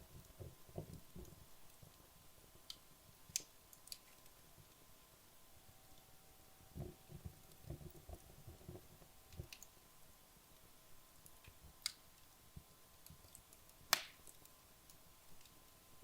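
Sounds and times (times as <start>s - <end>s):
wood fire crackling: 0.0s - 16.0s
fire pop: 13.6s - 14.4s.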